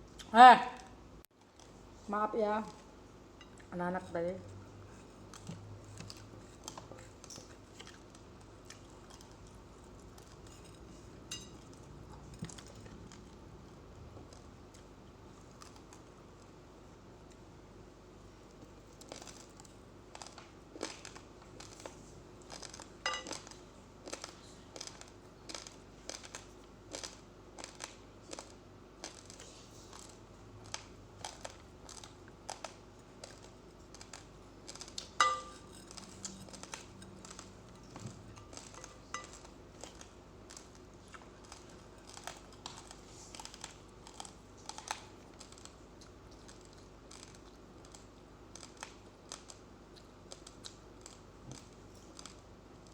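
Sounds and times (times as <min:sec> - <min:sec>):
chewing crunchy rice: 0:04.5 - 0:52.9.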